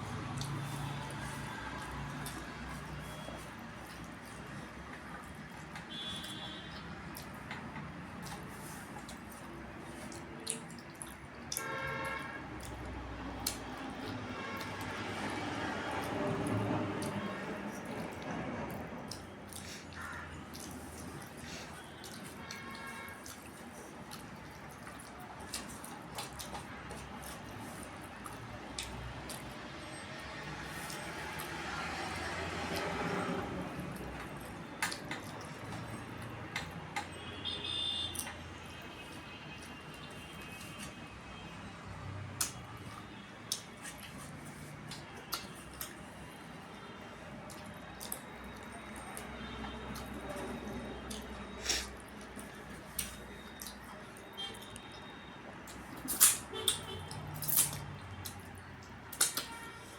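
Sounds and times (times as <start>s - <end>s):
wet chewing and squishing: 0.0s - 59.9s
lip smacks: 8.2s - 11.7s, 12.6s - 29.6s, 42.3s - 46.7s, 47.4s - 55.0s, 55.6s - 59.9s.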